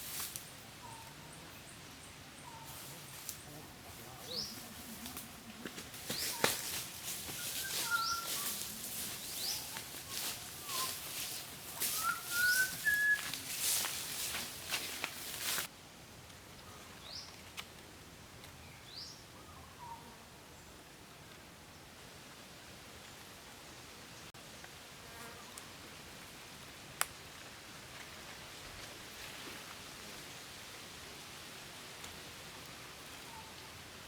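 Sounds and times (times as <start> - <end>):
birds chirping: 0.5 - 15.6
loud crackly hiss: 4.4 - 15.7
whistled bird notes: 7.4 - 8.7, 9.4 - 11.1, 11.7 - 13.4.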